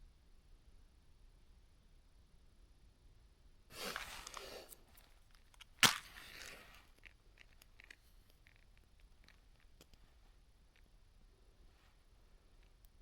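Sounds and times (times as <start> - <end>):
rustling of fire-starting material: 3.7 - 5.1
loud sharp crack: 5.8 - 6.7.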